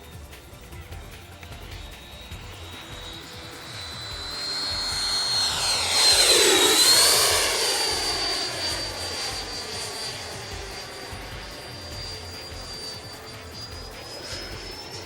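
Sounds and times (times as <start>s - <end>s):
electric fan jet whine: 0.0s - 15.0s.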